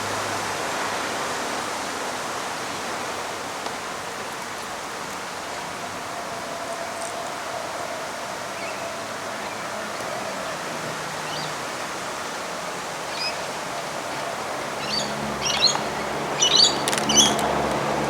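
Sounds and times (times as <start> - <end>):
outdoor background hiss: 0.0 - 18.0
birds chirping: 8.5 - 18.0.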